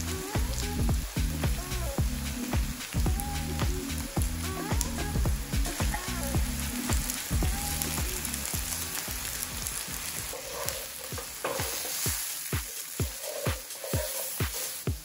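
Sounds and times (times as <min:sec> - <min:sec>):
onions sizzling in frying pan: 0:00.0 - 0:15.0
wooden spoon scraping pan: 0:10.2 - 0:14.9.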